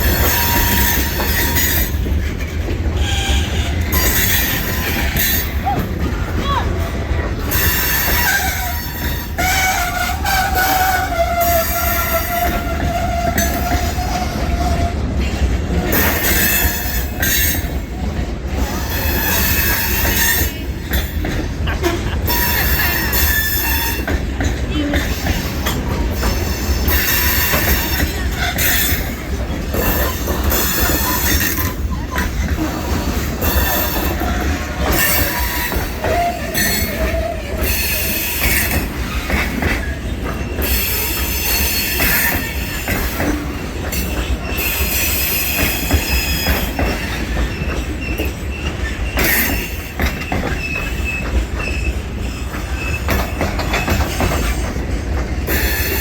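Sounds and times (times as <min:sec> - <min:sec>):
high-pitched wheel squeal: 0:00.0 - 0:02.0, 0:29.8 - 0:39.4
train cars rumbling past: 0:00.0 - 0:56.0.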